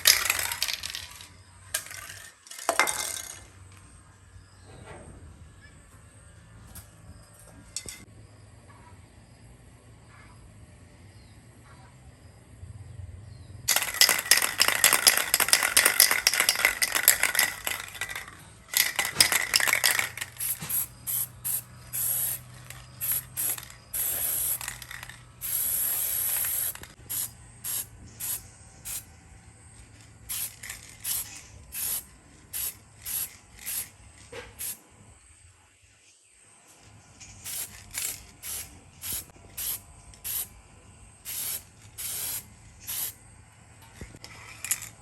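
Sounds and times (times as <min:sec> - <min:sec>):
short hissing bursts: 0:13.7 - 0:29.1, 0:30.2 - 0:34.0, 0:34.6 - 0:34.8, 0:37.2 - 0:40.6, 0:41.2 - 0:43.2.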